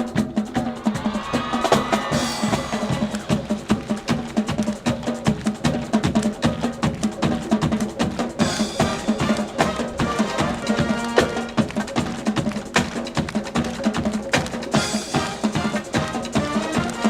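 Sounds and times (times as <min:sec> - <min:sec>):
drum and percussion beat: 0:00.0 - 0:17.0
brass chords: 0:08.4 - 0:11.9, 0:14.8 - 0:17.0.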